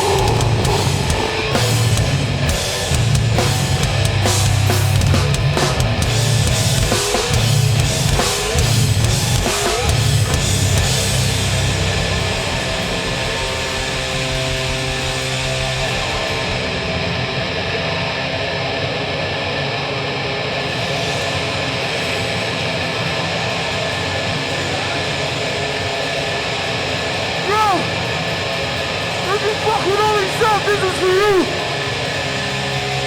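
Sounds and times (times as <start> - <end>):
heavy live band playing: 0.0 - 17.0, 25.0 - 32.6
guitar amplifier feedback: 0.0 - 33.0.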